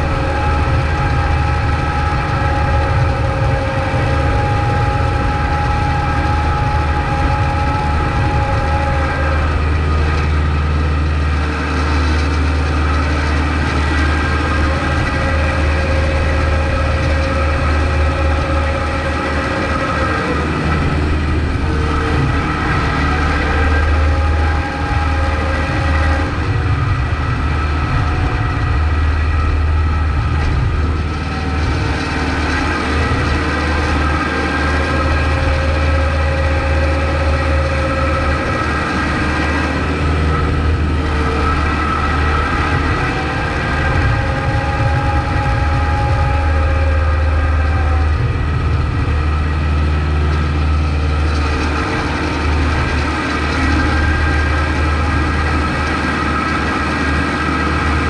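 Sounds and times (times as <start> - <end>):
tractor diesel engine droning: 0.0 - 58.0.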